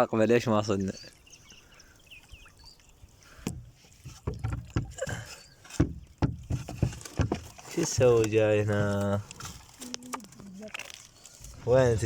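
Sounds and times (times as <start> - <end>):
wooden knocks on boat hull: 3.4 - 8.4.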